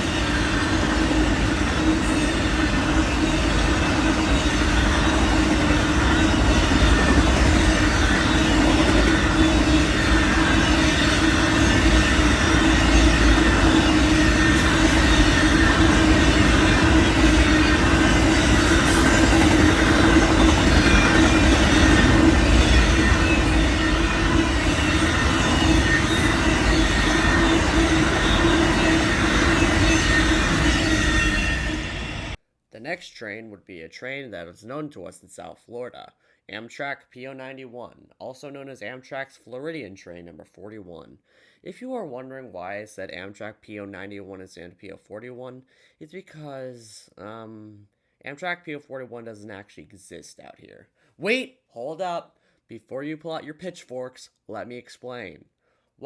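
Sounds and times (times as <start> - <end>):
train wheels rumbling on track: 0.0 - 32.4.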